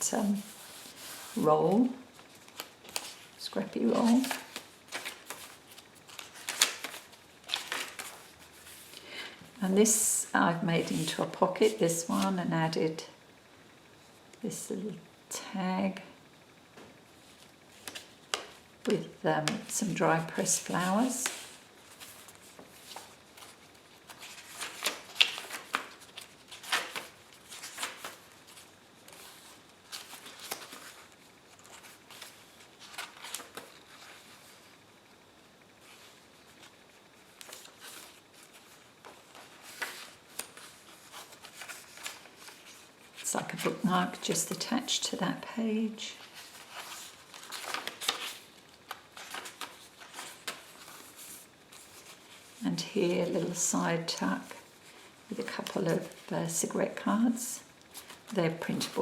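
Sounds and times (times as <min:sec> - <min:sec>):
paper rustling and crinkling: 0:00.0 - 0:09.0, 0:19.5 - 0:34.8, 0:35.8 - 0:44.7, 0:46.0 - 0:52.6, 0:57.8 - 0:59.0.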